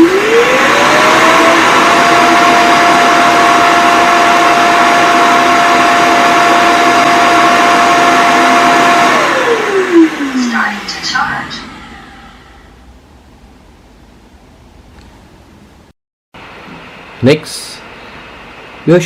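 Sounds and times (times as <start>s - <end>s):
suction motor rushing and whining: 0.0s - 12.8s.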